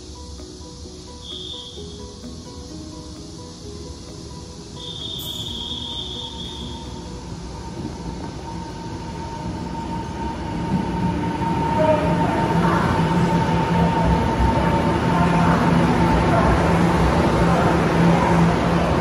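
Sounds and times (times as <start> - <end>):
thin steady tone: 0.0 - 10.2
train rumbling: 0.0 - 19.0.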